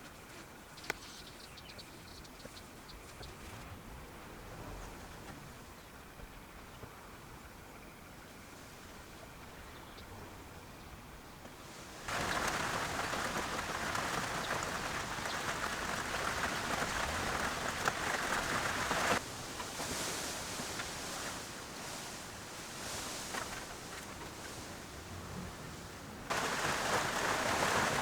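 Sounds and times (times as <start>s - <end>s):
faint hiss: 10.6s - 28.0s
steady hiss: 11.6s - 28.0s.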